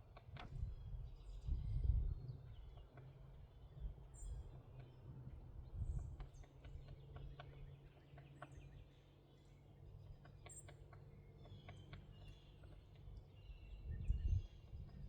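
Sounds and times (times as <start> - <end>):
small birds chirping: 6.0 - 15.0.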